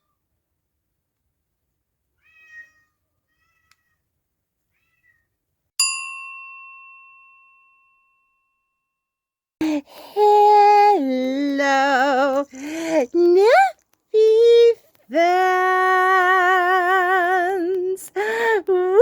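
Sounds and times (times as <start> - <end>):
cat meowing: 2.2 - 4.0, 4.7 - 5.4
bell-like chime ringing: 5.8 - 9.0.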